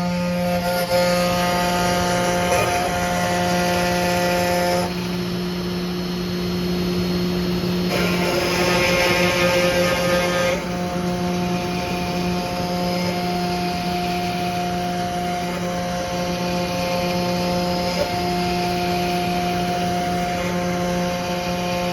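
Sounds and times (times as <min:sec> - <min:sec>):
router spindle whine: 0:00.0 - 0:21.9
router bit cutting rasp: 0:07.9 - 0:21.9.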